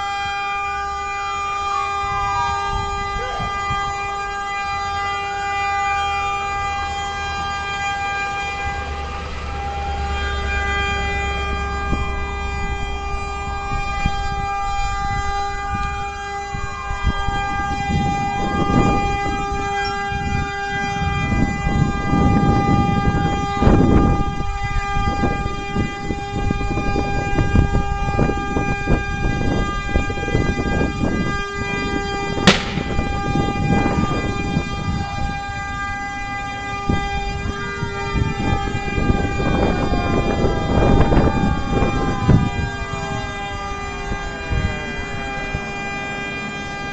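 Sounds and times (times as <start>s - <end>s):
emergency sirens wailing: 0.0s - 46.9s
steady horn tone: 7.7s - 46.8s
sharp crack: 32.4s - 33.4s.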